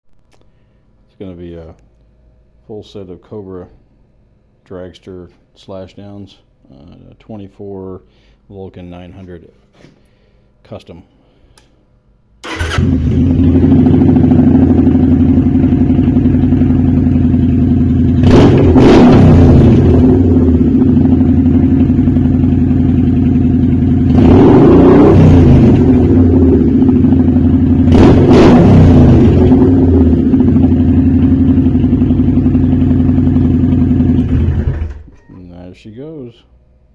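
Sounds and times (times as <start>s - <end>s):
motorcycle engine idling and revving: 12.5s - 35.1s.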